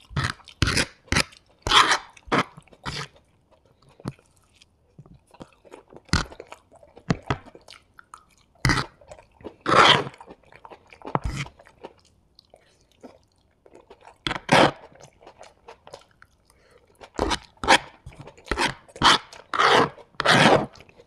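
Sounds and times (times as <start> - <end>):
wet chewing and mouth sounds: 0.0 - 21.0.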